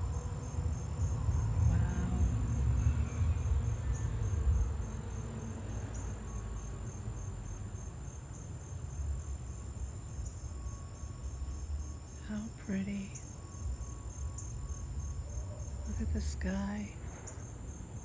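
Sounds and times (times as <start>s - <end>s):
steady high drone: 0.0s - 7.8s, 8.4s - 18.0s
low rumble: 0.0s - 7.9s
crickets chirping: 0.0s - 18.0s.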